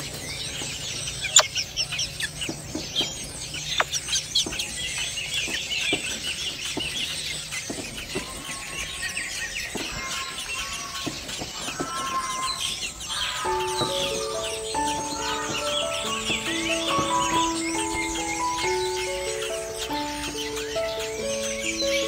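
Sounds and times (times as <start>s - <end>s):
high-pitched bird chirping: 12.0s - 22.0s.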